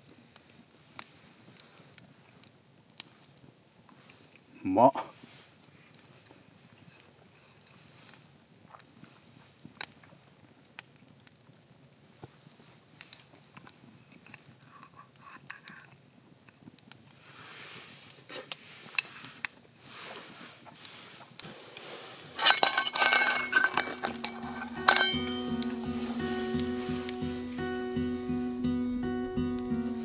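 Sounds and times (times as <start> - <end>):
utensils clinking on cookware: 21.8 - 26.2
guitar music: 24.0 - 30.0.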